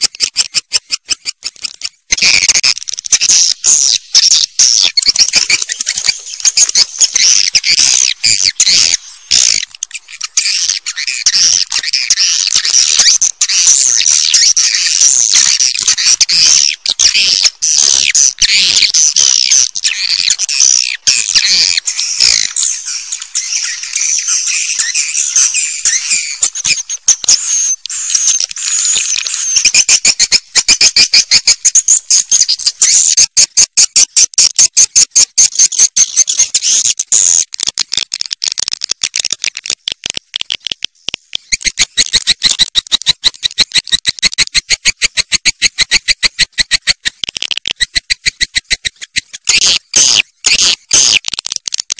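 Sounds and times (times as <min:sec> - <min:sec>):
swiftlets twittering: 0:02.2 - 0:33.2.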